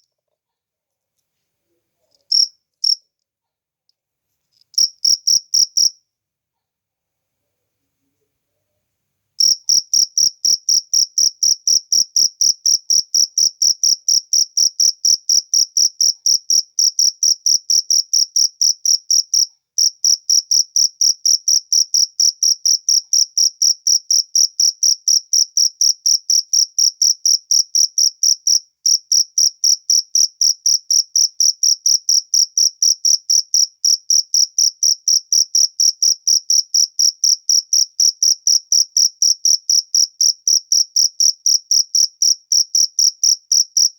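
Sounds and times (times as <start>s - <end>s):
cricket chirping: 2.1s - 3.0s, 4.6s - 6.0s, 9.4s - 43.9s.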